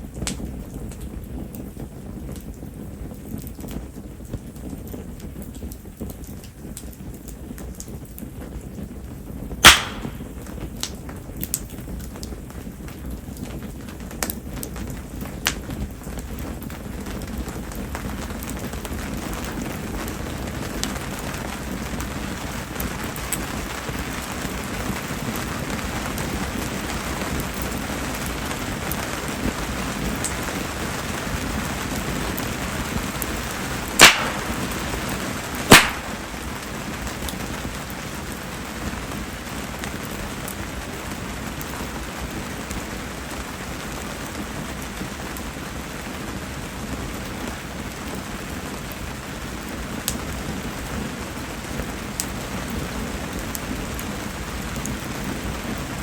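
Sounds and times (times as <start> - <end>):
steady rain falling: 0.0 - 56.0
wood fire burning: 0.0 - 56.0
sharp cracks: 9.6 - 10.6, 33.9 - 36.7.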